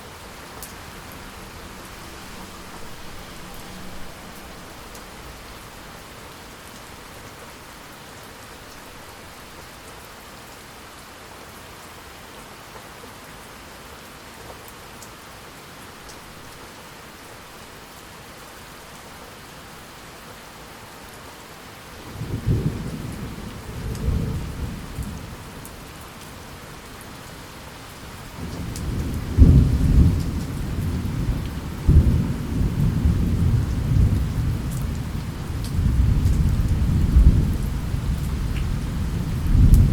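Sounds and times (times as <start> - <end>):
steady rain falling: 0.0 - 39.9
thunder rumbling: 28.4 - 39.9.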